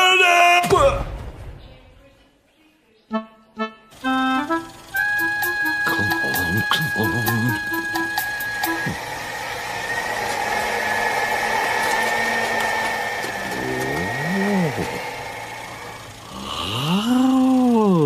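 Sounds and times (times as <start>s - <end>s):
cartoon engine idling: 3.6s - 18.0s
thin high whine: 5.8s - 17.4s.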